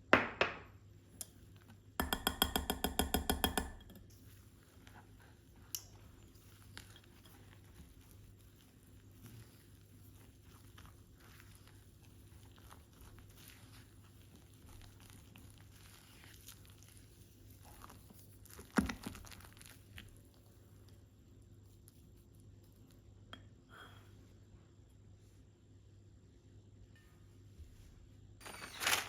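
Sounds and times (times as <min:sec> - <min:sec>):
rustling and scraping: 0:27.4 - 0:29.0.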